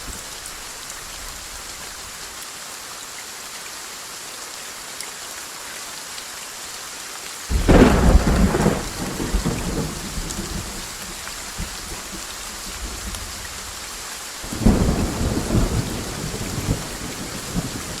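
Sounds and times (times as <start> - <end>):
steady rain: 0.0 - 18.0
thunderclap rolling: 7.5 - 10.8.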